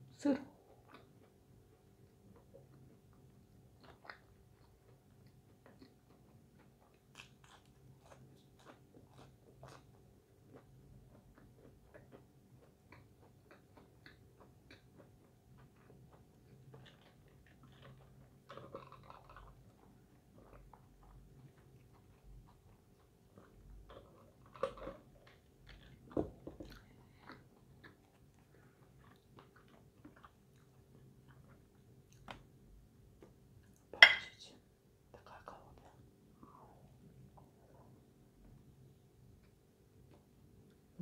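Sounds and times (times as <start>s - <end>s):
person chewing fried food: 0.6s - 32.5s.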